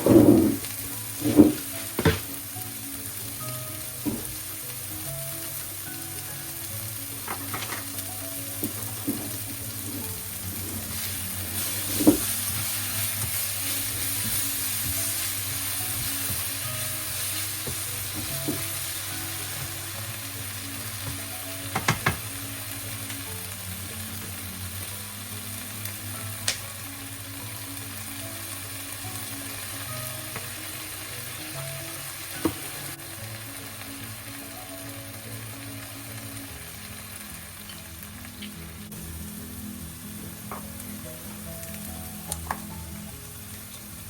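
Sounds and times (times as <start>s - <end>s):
food sizzling in a frying pan: 0.0s - 44.0s
utensil knocking against pan: 21.1s - 22.2s.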